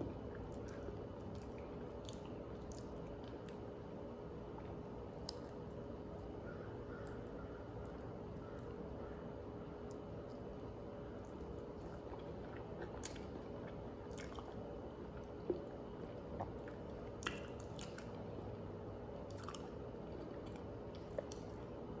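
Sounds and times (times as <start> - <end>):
person chewing food: 0.0 - 3.7, 4.6 - 6.3, 11.2 - 18.2, 19.3 - 21.7.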